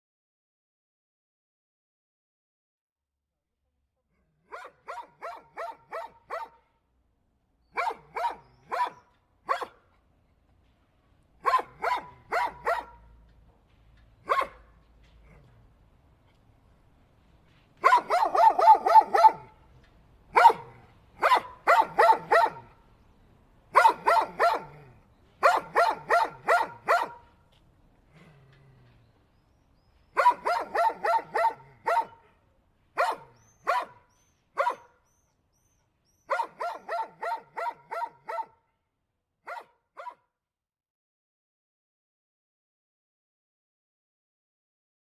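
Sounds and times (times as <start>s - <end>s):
dog barking: 4.3s - 6.7s, 7.7s - 9.9s, 11.4s - 13.1s, 14.2s - 15.5s, 17.8s - 19.6s, 20.3s - 22.8s, 23.7s - 27.4s, 30.1s - 32.4s, 33.0s - 35.1s, 36.3s - 38.7s, 39.4s - 40.3s.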